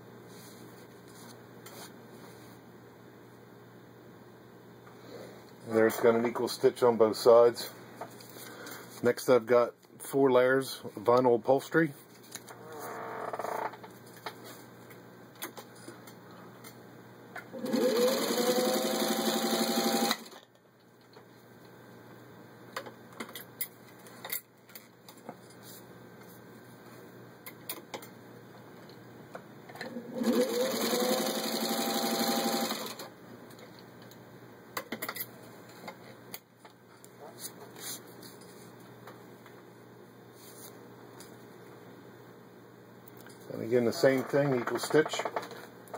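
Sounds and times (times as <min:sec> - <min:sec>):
sewing machine stitching: 0:17.5 - 0:20.4, 0:29.8 - 0:33.1.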